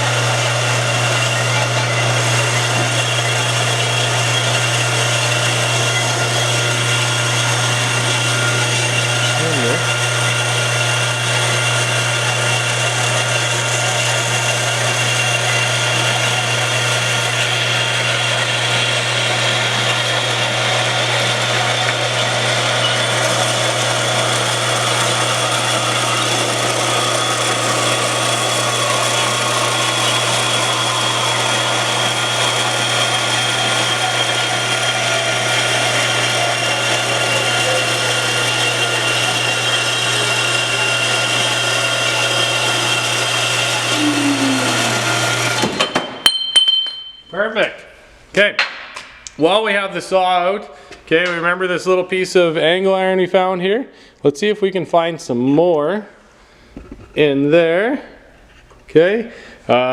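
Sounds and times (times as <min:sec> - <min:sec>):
power saw cutting steel pipe: 0:00.0 - 0:46.2.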